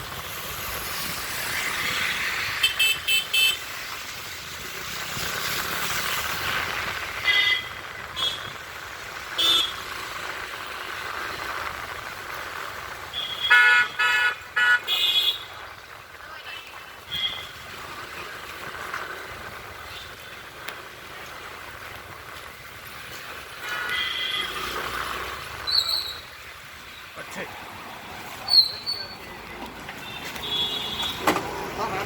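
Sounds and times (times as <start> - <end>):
traffic noise: 0.0 - 32.0
vehicle horns honking: 2.6 - 3.6, 7.2 - 8.5, 9.4 - 9.8, 13.2 - 15.5, 30.0 - 32.0.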